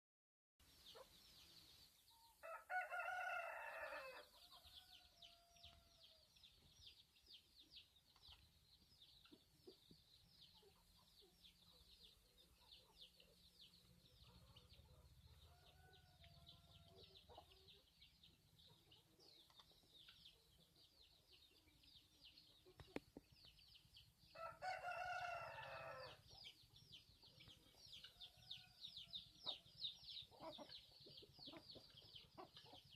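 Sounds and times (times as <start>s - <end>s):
rooster crowing: 2.4s - 6.0s, 24.4s - 26.2s.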